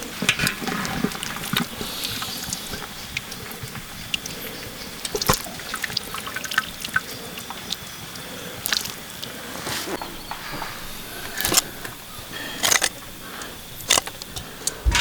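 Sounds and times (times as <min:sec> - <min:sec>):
liquid trickling and dripping: 0:00.0 - 0:09.4.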